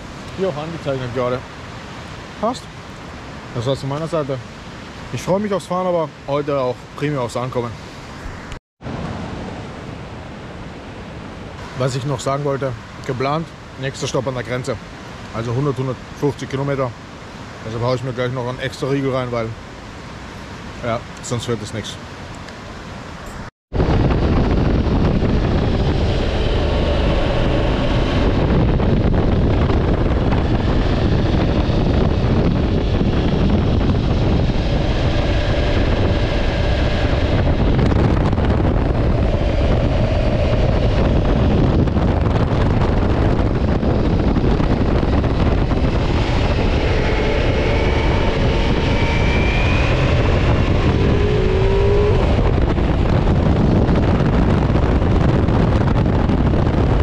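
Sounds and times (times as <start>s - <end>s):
wind rushing over microphone: 0.0s - 57.0s
motorcycle engine: 24.2s - 53.4s.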